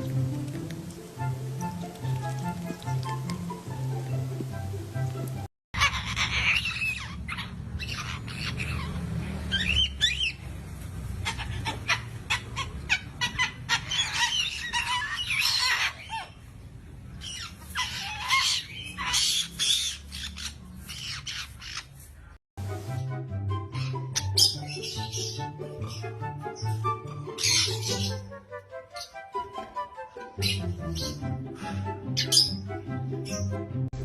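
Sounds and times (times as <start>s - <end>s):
bird squawking and chirping: 5.8s - 10.4s, 11.2s - 16.5s, 17.2s - 22.0s, 23.7s - 28.3s, 30.4s - 33.5s.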